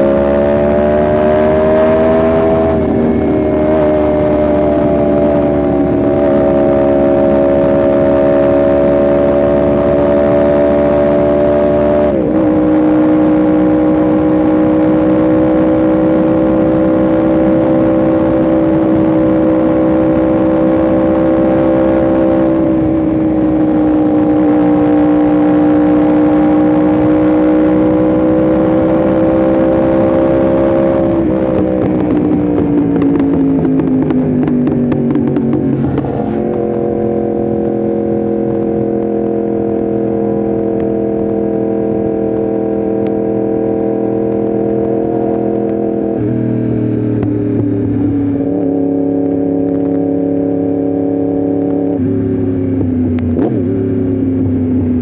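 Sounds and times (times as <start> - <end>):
motorcycle engine cruising: 0.0 - 55.0
motorcycle upshift: 30.8 - 37.8.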